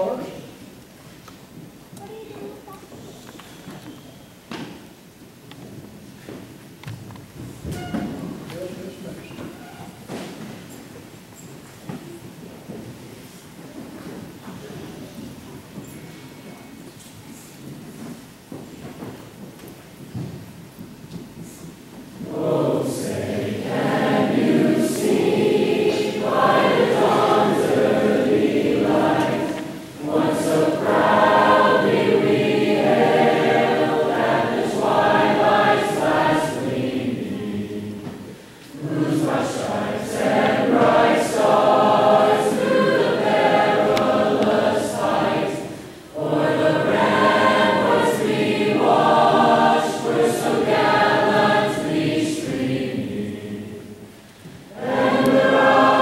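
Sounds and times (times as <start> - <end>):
choir singing: 22.2 - 56.0.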